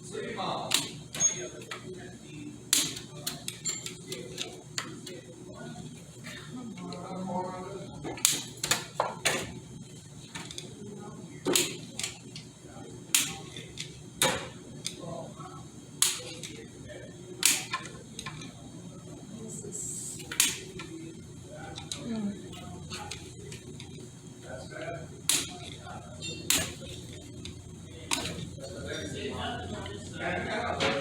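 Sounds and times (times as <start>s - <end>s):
hand tools clicking on metal: 26.5s - 28.5s.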